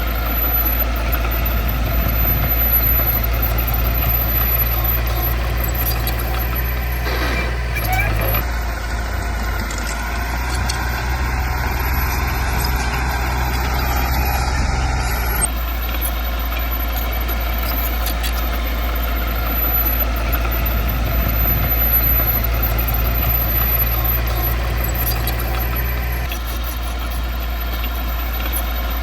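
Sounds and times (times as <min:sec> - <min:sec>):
heavy diesel machinery engine: 0:00.0 - 0:29.0.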